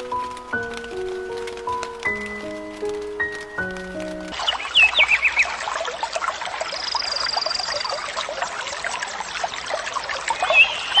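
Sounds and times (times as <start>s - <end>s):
stream trickling: 0.0s - 11.0s
bird calling: 10.4s - 11.0s.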